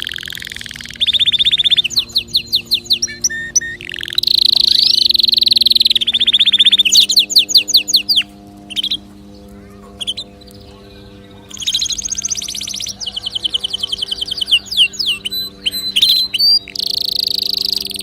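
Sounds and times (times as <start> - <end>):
canary singing trills: 0.0 - 18.0.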